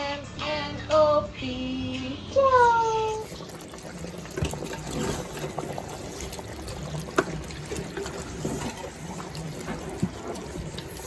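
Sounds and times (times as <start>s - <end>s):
water trickling: 3.0s - 11.0s.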